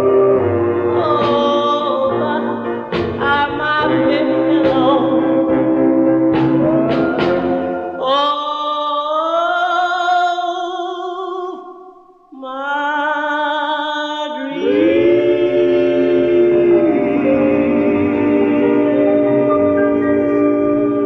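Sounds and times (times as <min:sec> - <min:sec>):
backing music: 0:00.0 - 0:08.2, 0:14.6 - 0:21.0
doo-wop group singing in harmony: 0:00.0 - 0:08.2, 0:14.4 - 0:21.0.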